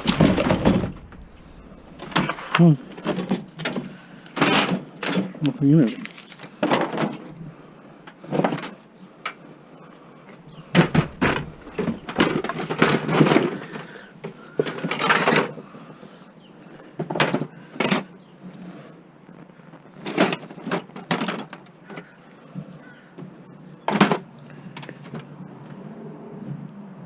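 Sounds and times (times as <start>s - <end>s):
plastic and metal parts clattering: 0.0s - 1.3s, 2.0s - 7.3s, 10.7s - 15.6s, 17.0s - 18.0s, 20.0s - 22.1s.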